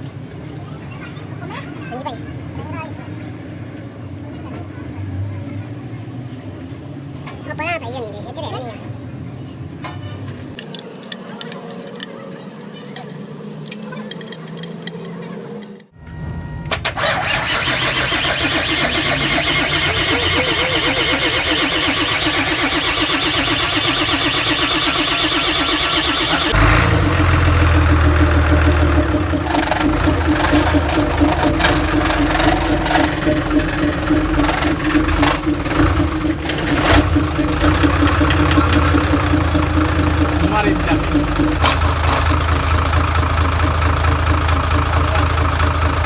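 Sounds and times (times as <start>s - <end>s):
engine running with low rumble: 16.0s - 46.0s
engine cranking and starting: 16.6s - 46.0s.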